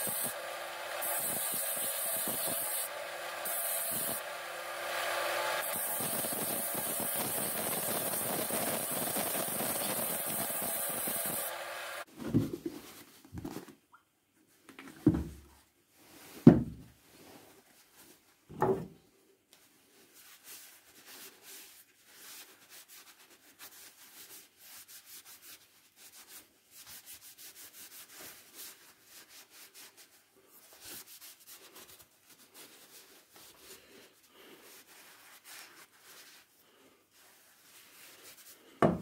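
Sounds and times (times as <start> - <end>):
hand sanding strokes: 0.0 - 12.1, 20.2 - 38.8.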